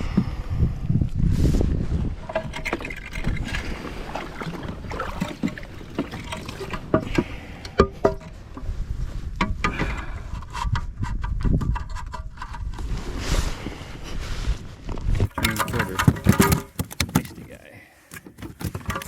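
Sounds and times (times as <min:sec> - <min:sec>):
wind rumble on microphone: 0:00.0 - 0:05.6, 0:06.3 - 0:15.3
gear knocking and rattling: 0:15.3 - 0:17.5, 0:18.1 - 0:19.0.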